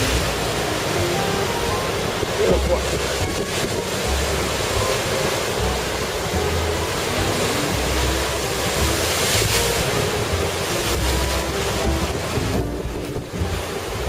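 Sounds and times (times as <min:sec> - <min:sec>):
surf pounding rocky shore: 0:00.0 - 0:14.0
wind buffeting microphone: 0:00.0 - 0:14.0.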